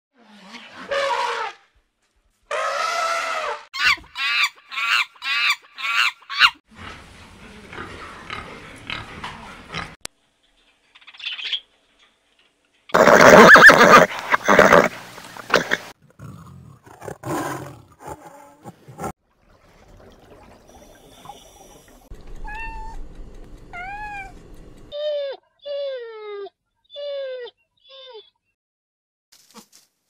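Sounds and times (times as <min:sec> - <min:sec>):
animal whining cries: 0:13.0 - 0:14.9, 0:22.3 - 0:23.1, 0:23.7 - 0:28.3.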